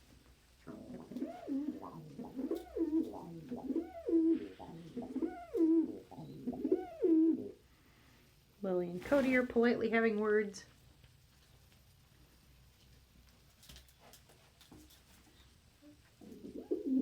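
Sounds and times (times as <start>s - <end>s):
pigeons cooing: 0.6s - 7.6s, 16.2s - 17.0s.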